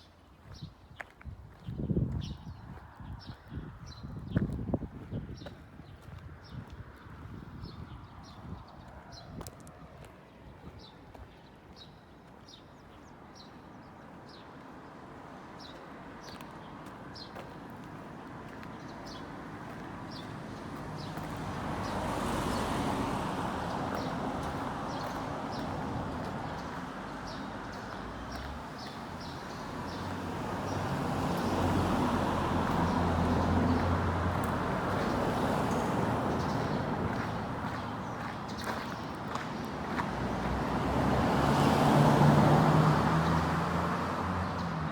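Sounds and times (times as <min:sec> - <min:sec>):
vehicles passing: 0:12.7 - 0:44.9.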